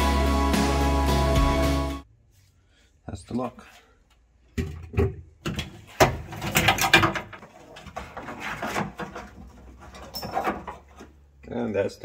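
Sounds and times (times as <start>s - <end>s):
clattering and rustling wiring: 4.1s - 11.7s.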